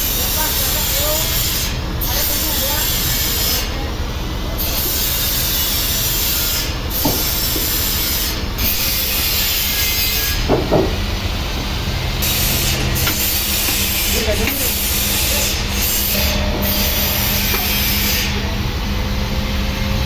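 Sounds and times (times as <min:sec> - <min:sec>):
sawmill saw cutting log: 0:00.0 - 0:11.3, 0:11.9 - 0:19.3.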